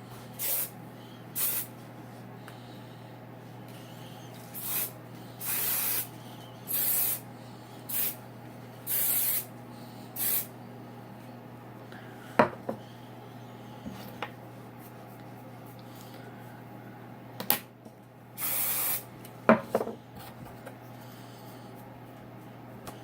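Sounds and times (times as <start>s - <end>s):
hairspray hissing bursts: 0.4s - 0.7s, 1.4s - 1.7s, 4.5s - 6.1s, 6.7s - 7.2s, 7.9s - 8.2s, 8.9s - 9.5s, 10.2s - 10.5s, 18.4s - 19.0s.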